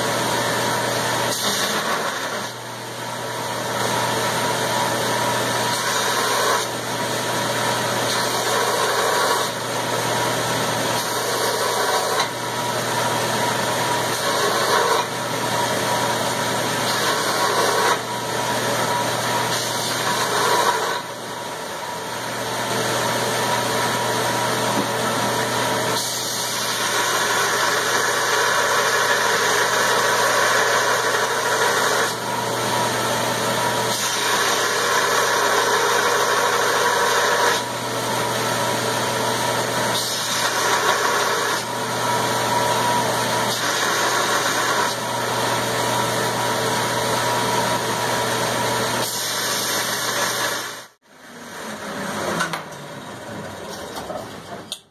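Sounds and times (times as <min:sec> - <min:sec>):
shop machine noise: 0:00.0 - 0:54.9.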